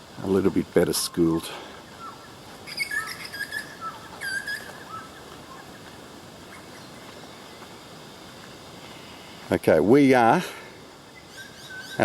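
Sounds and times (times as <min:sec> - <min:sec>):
birds chirping: 0:00.0 - 0:07.8, 0:11.0 - 0:12.0
faint outdoor background hum: 0:00.0 - 0:12.0.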